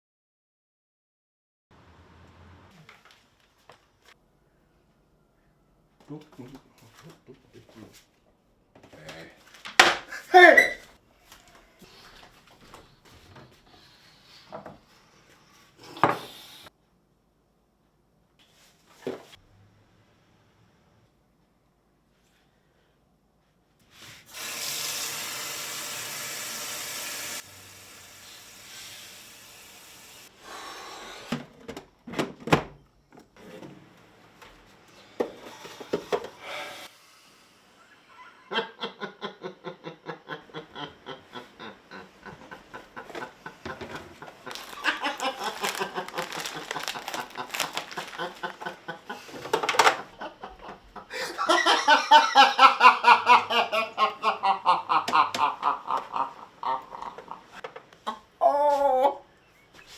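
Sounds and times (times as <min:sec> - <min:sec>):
person laughing: 0:10.0 - 0:10.9, 0:37.9 - 0:59.2
burst of hiss: 0:16.1 - 0:16.7, 0:24.2 - 0:31.3, 0:35.5 - 0:37.9.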